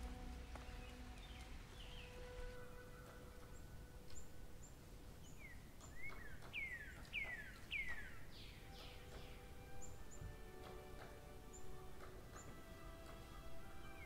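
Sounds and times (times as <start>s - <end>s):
birds chirping: 0.0s - 14.0s
low background hiss: 0.0s - 14.0s
falling whistled bird calls: 0.6s - 10.5s.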